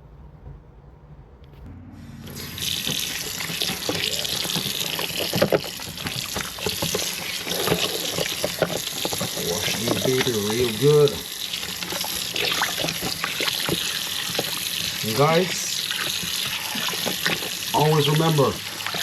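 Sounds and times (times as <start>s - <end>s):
splashing as ribs are washed: 2.3s - 19.0s
water running from a tap: 2.3s - 19.0s.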